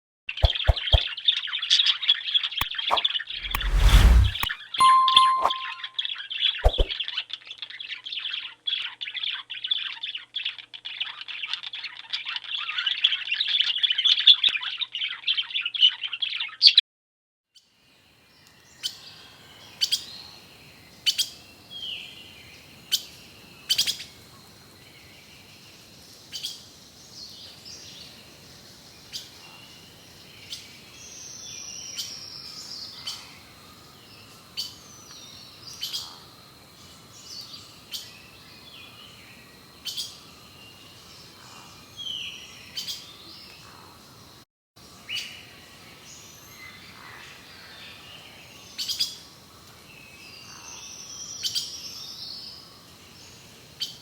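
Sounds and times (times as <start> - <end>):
single sharp bird chirps: 6.6 - 7.0.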